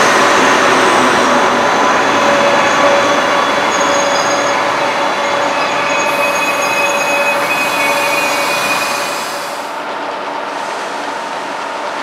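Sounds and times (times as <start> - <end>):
train coaches rolling: 0.0 - 12.0
high-pitched wheel squeal: 2.1 - 9.7.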